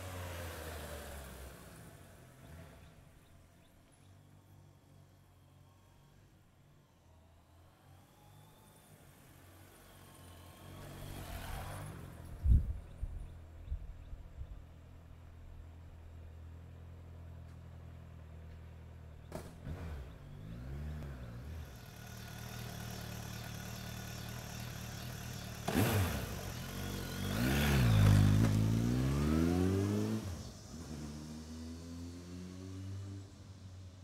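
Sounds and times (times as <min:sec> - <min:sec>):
motorcycle engine revving: 0:19.3 - 0:33.8.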